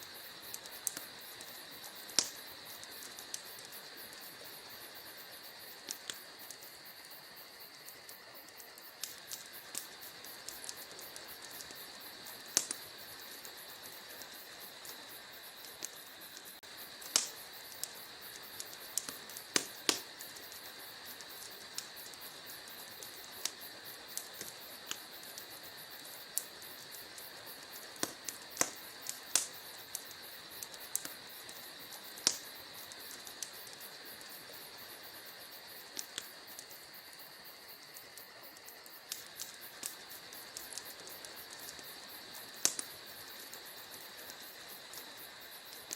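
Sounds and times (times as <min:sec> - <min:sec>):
crickets chirring: 0:00.0 - 0:45.9
wood fire crackling and popping: 0:00.0 - 0:45.9.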